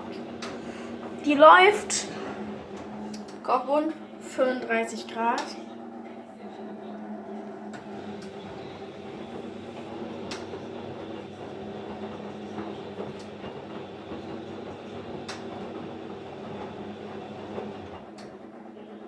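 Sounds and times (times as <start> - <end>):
washing machine drum humming: 0.0 - 19.0.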